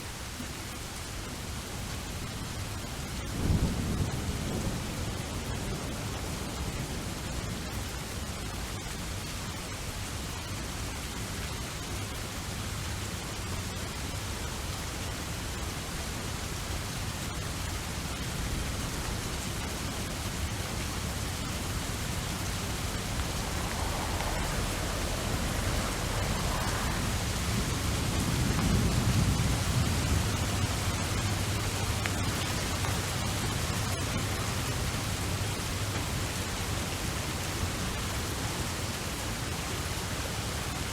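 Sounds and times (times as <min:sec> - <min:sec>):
steady rainfall: 0:00.0 - 0:40.9
low rumble of thunder: 0:03.2 - 0:09.8, 0:16.5 - 0:38.2.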